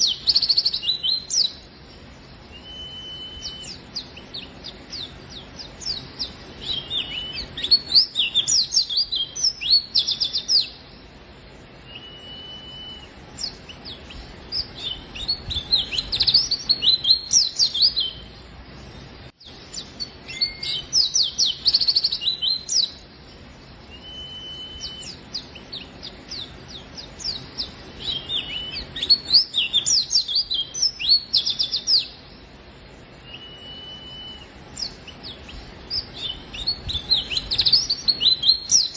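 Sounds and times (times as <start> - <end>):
bird twittering chirps: 0.0 - 38.9
single whistled bird note: 2.6 - 3.8, 11.9 - 13.1, 20.3 - 20.8, 23.9 - 25.2, 33.2 - 34.6.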